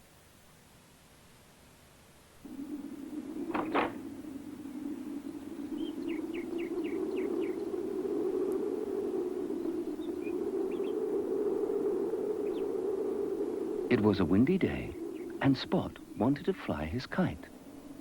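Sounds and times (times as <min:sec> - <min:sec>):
bird chirps: 0:03.5 - 0:07.8, 0:09.4 - 0:11.0, 0:12.4 - 0:12.7, 0:13.9 - 0:17.0.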